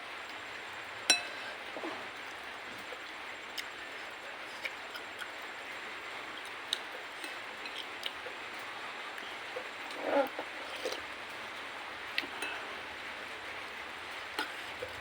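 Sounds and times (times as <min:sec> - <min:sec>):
spoon clinking on soup bowl: 0:01.1 - 0:01.5.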